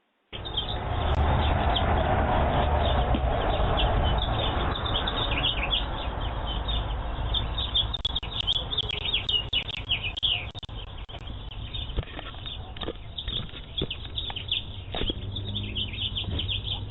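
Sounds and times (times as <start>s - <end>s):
small birds chirping: 0.3s - 16.9s.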